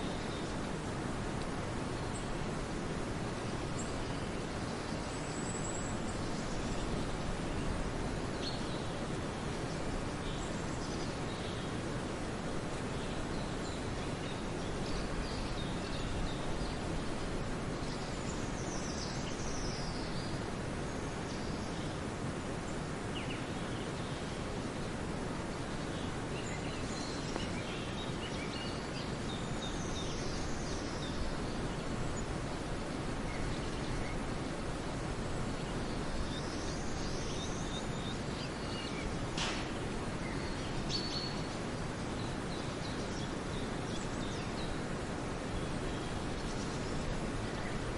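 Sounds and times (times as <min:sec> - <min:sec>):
sharp click: 0:39.4 - 0:39.8.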